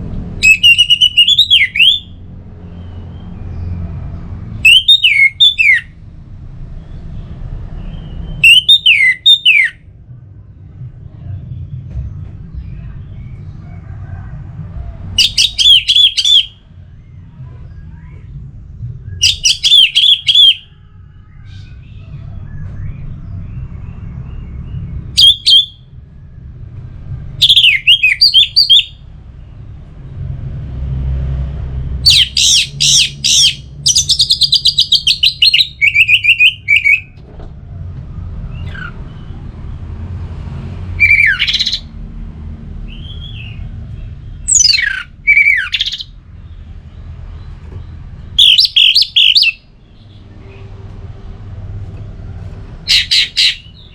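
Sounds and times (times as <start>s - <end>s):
thrush singing: 0.4s - 2.2s, 4.6s - 5.9s, 8.4s - 9.8s, 15.1s - 16.6s, 19.2s - 22.3s, 25.2s - 25.8s, 27.4s - 29.0s, 32.0s - 37.2s, 41.0s - 41.9s, 48.4s - 50.4s, 52.8s - 53.9s
steady low rumble: 9.8s - 19.7s, 20.6s - 53.9s.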